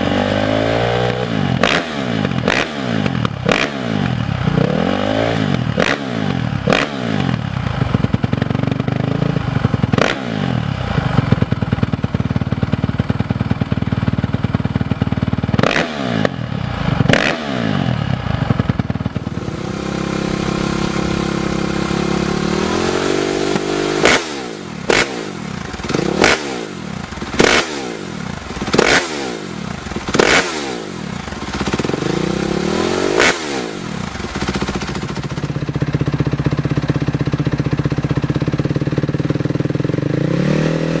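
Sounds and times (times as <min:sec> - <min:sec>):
motorcycle engine revving: 0:00.0 - 0:41.0
motorcycles riding past: 0:15.6 - 0:35.6.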